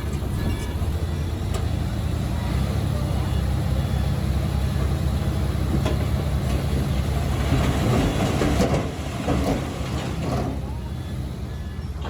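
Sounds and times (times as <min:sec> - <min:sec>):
diesel engine low rumble: 0:00.0 - 0:12.0
steel tracks clanking: 0:03.6 - 0:12.0.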